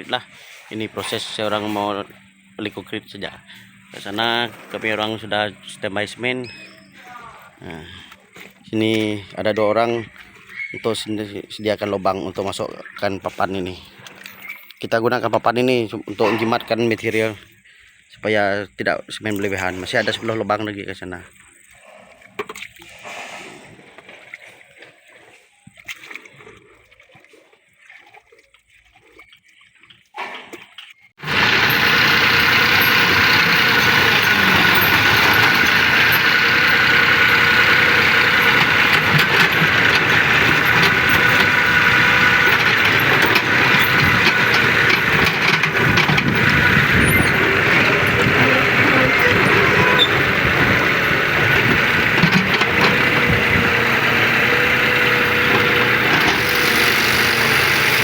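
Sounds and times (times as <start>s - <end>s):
machine engine whining drone: 31.2s - 58.0s.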